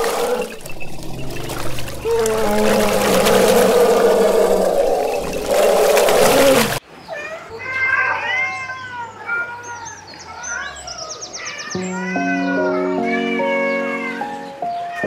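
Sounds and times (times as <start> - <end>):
cats meowing: 0.0 - 14.2
background music with held notes: 11.8 - 15.0.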